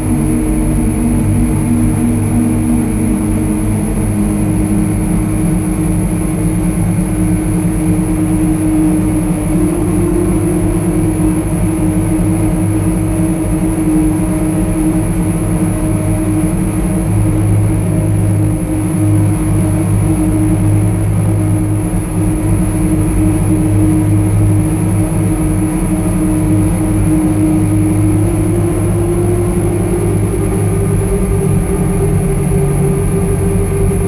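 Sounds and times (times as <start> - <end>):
synthesizer drone: 0.0 - 12.0.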